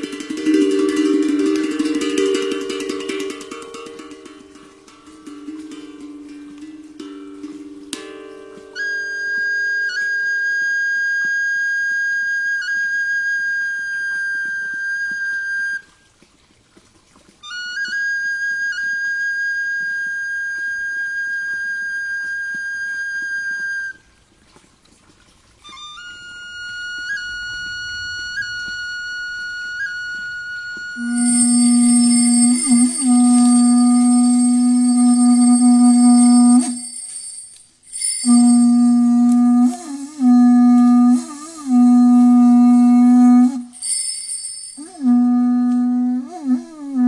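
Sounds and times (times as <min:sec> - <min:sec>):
flute playing long notes: 0:08.4 - 0:16.1, 0:17.4 - 0:24.1, 0:25.6 - 0:47.0.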